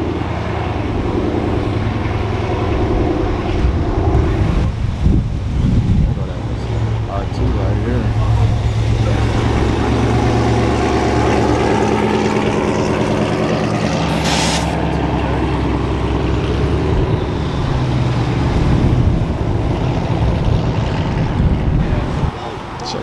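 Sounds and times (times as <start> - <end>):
brief hiss: 14.1 - 14.8.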